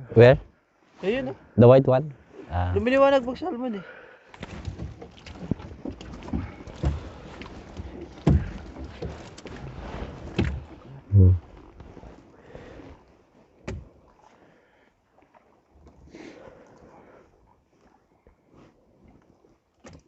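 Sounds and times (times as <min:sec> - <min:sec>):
fishing net knocks and thumps: 0:07.9 - 0:09.6.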